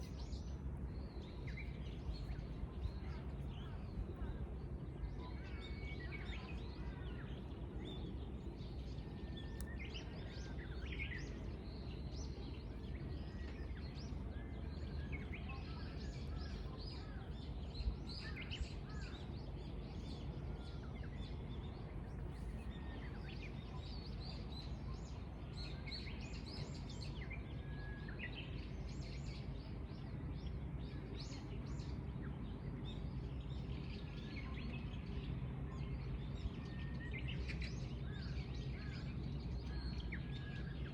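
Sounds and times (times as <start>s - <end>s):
low outdoor rumble: 0.0s - 40.9s.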